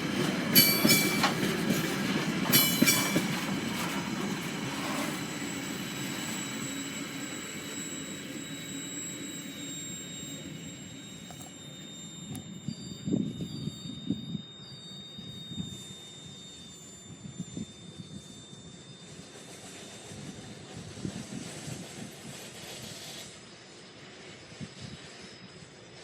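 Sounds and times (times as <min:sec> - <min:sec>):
wheels clicking over rail joints: 0:00.0 - 0:05.4
high wheel squeal: 0:00.0 - 0:26.0
train wagons rolling on rails: 0:00.0 - 0:26.0.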